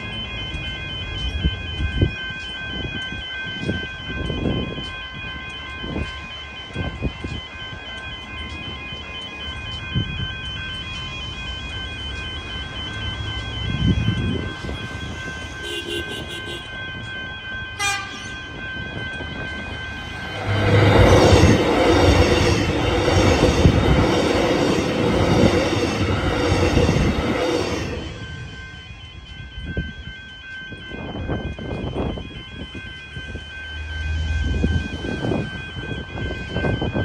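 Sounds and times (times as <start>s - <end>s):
electric train passing: 0.0s - 37.0s
level crossing bells ringing: 0.0s - 37.0s
train horn: 15.6s - 16.7s, 17.8s - 18.4s.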